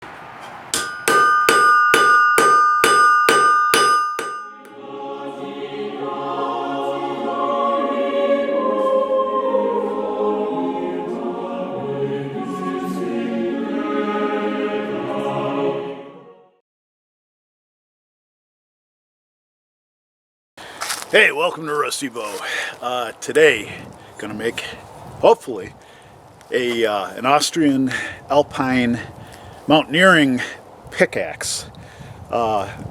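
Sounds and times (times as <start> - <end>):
hammer striking an anvil: 0.7 - 4.7
choral music: 4.2 - 16.6.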